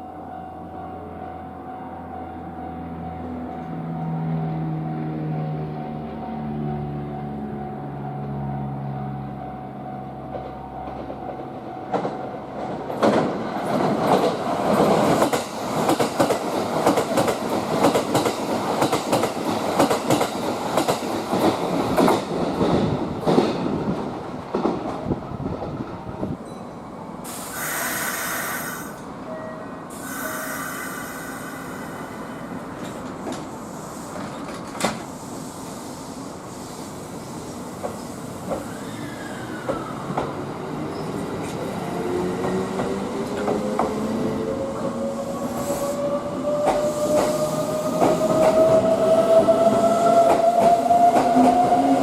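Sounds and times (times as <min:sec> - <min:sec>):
train wheels clattering over rails: 0:10.3 - 0:25.1, 0:46.0 - 0:52.0.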